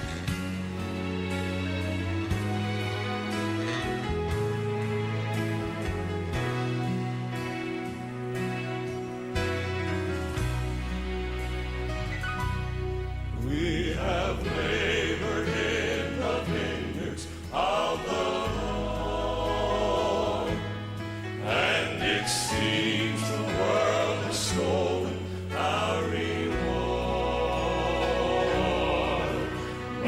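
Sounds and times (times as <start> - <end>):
low instrumental backing: 0.0 - 30.0
gospel singing with vibrato: 13.3 - 30.0.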